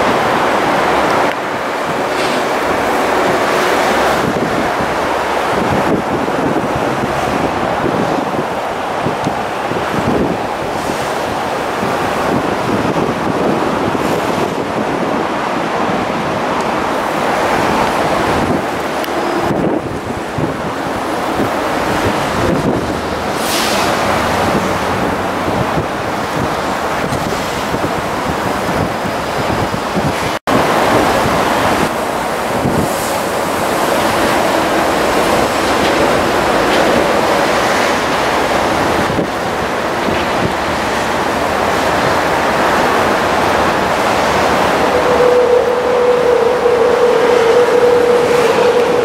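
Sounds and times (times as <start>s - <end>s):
train wheels rumbling on track: 0.0s - 49.0s
steady whine: 43.9s - 49.0s.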